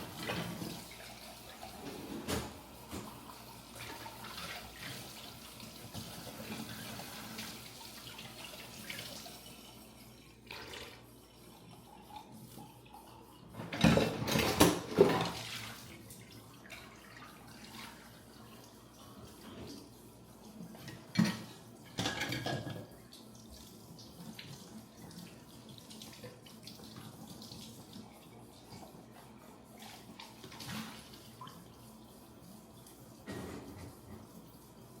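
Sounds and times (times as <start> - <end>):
tap running into sink: 1.8 - 3.3
dishes clattering: 13.6 - 15.4, 20.9 - 22.9.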